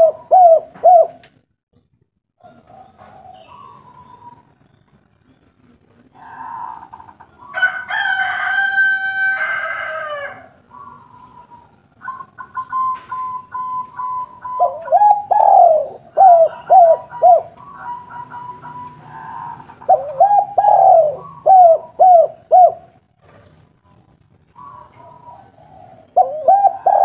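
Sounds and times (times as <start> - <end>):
dove cooing: 0.0 - 1.4, 2.4 - 4.6, 5.9 - 8.1, 9.8 - 27.0
rooster crowing: 6.3 - 10.6, 16.3 - 19.8.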